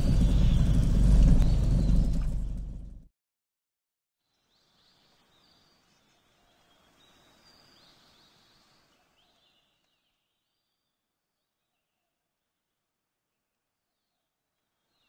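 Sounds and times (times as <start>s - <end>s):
small birds chirping: 0.0s - 2.7s, 4.2s - 12.0s.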